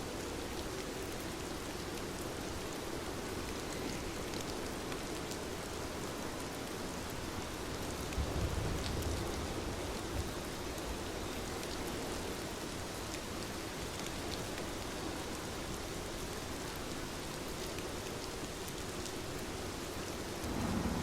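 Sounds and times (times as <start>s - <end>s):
steady rain falling: 0.0s - 21.0s
low rumble: 20.4s - 21.0s.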